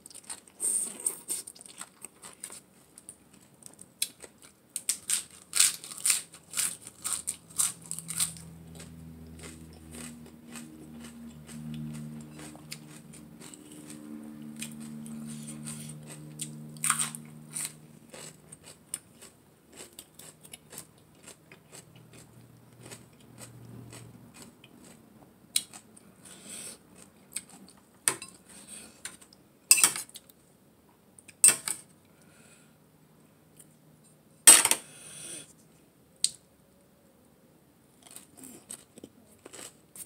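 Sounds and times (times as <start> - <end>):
chewing crunchy vegetables: 0.0 - 27.8, 38.0 - 40.0
low steady hum: 0.0 - 40.0.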